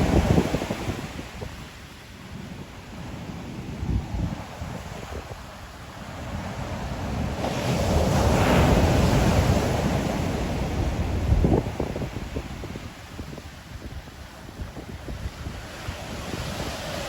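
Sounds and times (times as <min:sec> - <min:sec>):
wind buffeting microphone: 0:00.0 - 0:17.0
ocean wave breaking: 0:06.0 - 0:12.9.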